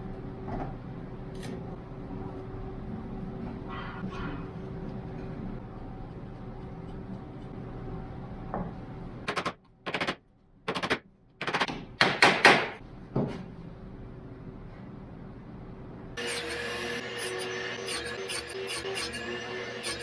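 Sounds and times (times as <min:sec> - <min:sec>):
rapid sharp knocking bursts: 0:09.3 - 0:12.7.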